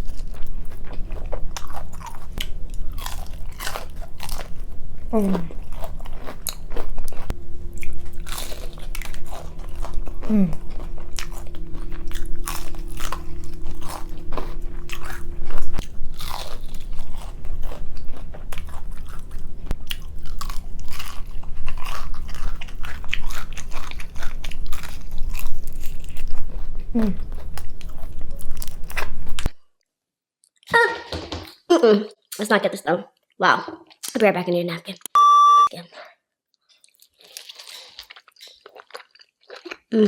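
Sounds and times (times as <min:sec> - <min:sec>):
person chewing crunchy food: 0:00.0 - 0:29.6, 0:36.6 - 0:39.9.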